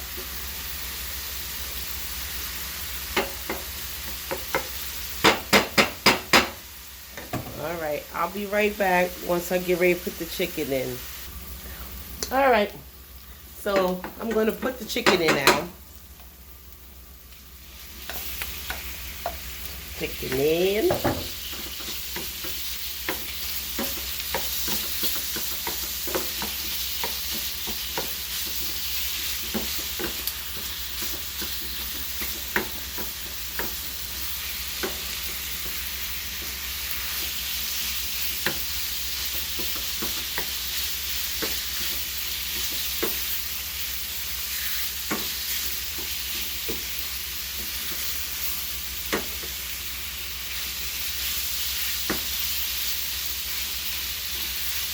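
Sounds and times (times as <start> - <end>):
food sizzling in a frying pan: 0.0 - 54.9
utensil tapping a pan: 4.3 - 6.6.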